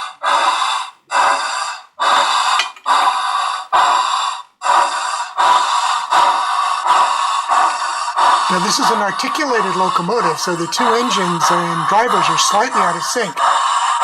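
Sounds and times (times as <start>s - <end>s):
model locomotive steam chuffs: 0.0s - 14.0s.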